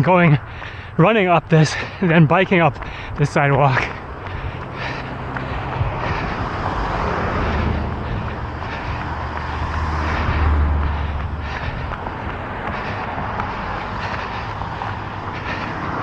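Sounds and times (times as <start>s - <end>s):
road traffic: 0.0s - 16.0s
vehicle engine rumble passing: 1.8s - 16.0s.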